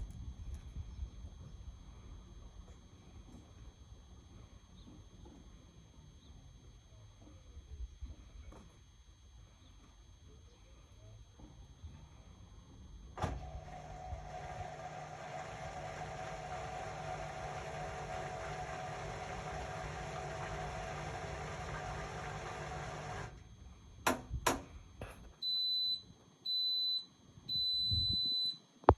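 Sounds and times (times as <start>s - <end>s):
washing machine running: 13.1s - 24.8s
long high beeps: 25.4s - 28.6s.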